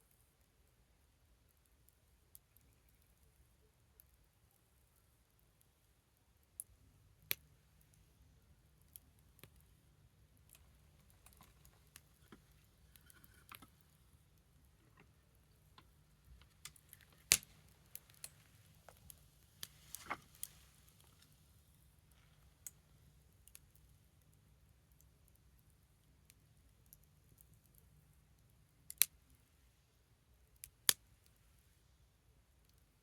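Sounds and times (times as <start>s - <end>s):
wood fire crackling: 0.1s - 33.0s.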